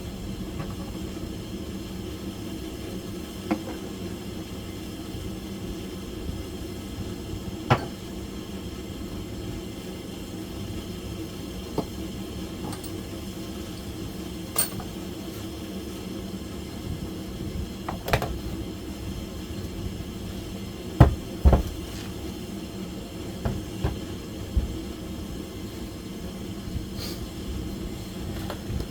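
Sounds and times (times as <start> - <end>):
low background hum: 0.0 - 28.9
metallic clinks of tools: 12.6 - 13.0, 14.6 - 14.9
heavy knocks: 21.0 - 21.8.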